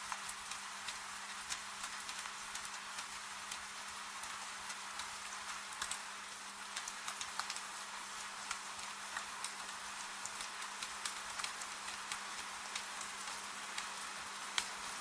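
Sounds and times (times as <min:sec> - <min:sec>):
gentle rain: 0:00.0 - 0:15.0
raindrops ticking: 0:08.5 - 0:14.8.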